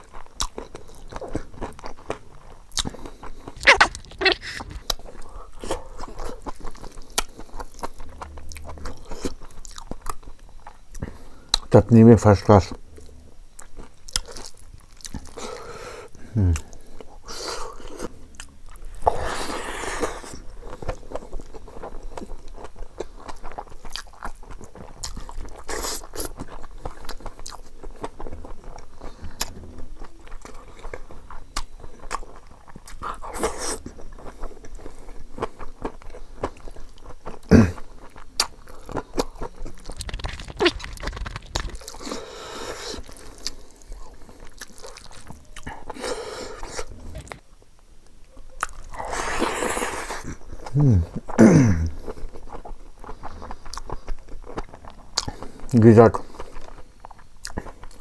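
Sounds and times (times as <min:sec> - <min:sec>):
wet chewing and lip-smacking: 0:00.0 - 0:11.7, 0:13.6 - 0:47.4, 0:48.4 - 0:51.4, 0:52.0 - 0:58.0
mouth clicks: 0:03.6 - 0:05.0.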